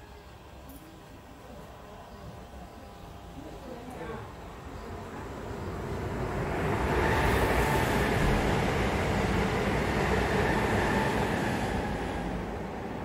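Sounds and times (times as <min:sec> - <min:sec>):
train rumble and wheel noise: 0:05.0 - 0:13.0.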